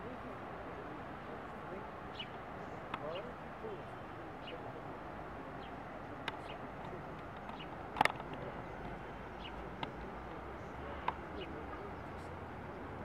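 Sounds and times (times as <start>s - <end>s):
steady background hiss: 0.0s - 13.0s
sharp clicks: 6.3s - 9.0s.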